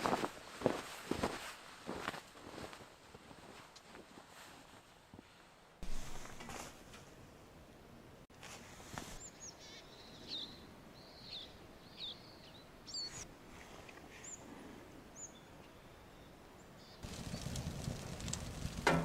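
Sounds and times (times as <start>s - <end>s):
faint hiss: 5.8s - 7.6s
bird chirping: 9.2s - 13.2s.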